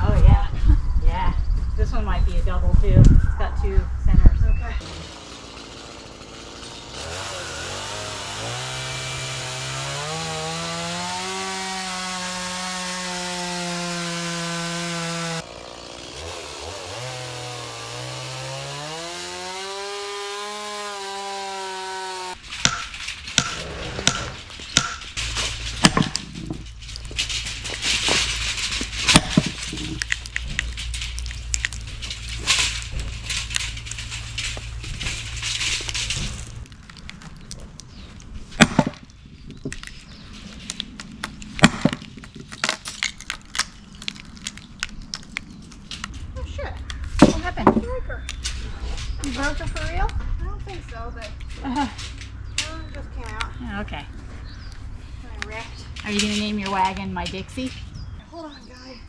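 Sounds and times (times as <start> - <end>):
chainsaw revving: 4.8 - 36.6
sharp cracks and knocks: 4.8 - 53.6.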